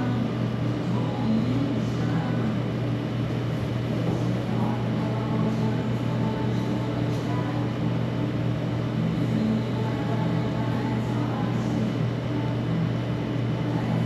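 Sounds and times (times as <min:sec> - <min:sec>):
low hum: 0:00.0 - 0:14.0
faint background music: 0:03.9 - 0:14.0.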